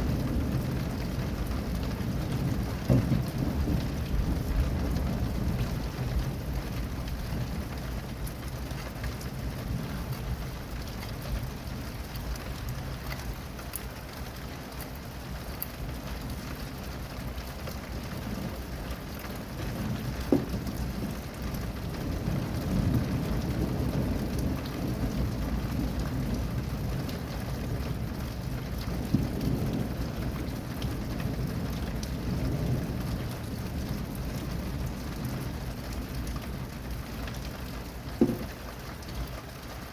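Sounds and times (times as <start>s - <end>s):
thunder rumbling: 0.0s - 8.3s, 18.2s - 38.8s
rain falling: 0.0s - 39.9s.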